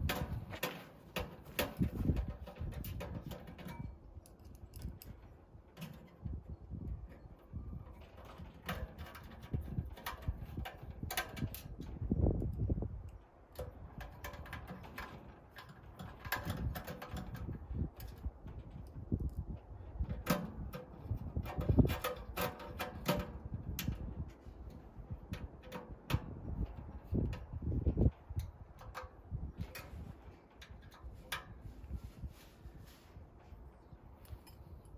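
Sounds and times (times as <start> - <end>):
sheet metal clanks and taps: 0.0 - 4.0, 20.0 - 24.1, 25.3 - 27.4, 28.4 - 31.6.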